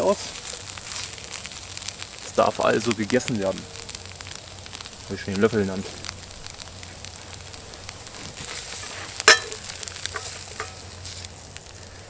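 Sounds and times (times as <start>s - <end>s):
bread sizzling in frying pan: 0.0s - 12.0s
spoon working in pan: 8.0s - 11.2s
sharp metallic clink: 9.3s - 10.8s.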